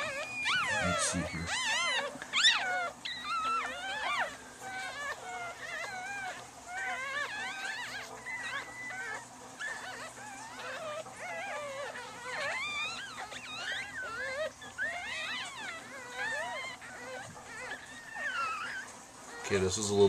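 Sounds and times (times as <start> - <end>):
puppies squealing and whining: 0.0 - 20.0.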